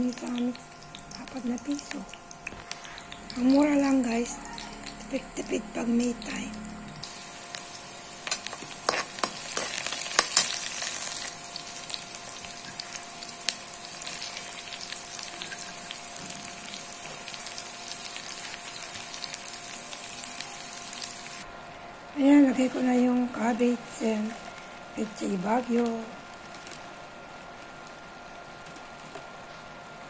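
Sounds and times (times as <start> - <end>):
vegetables sizzling in hot oil: 0.0 - 21.4
metal spatula clicking and scraping: 8.2 - 10.6.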